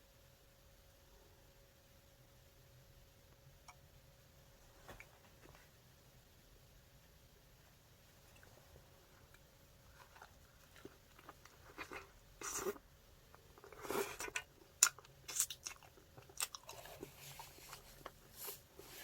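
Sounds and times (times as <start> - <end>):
crunchy chewing: 9.2 - 19.0.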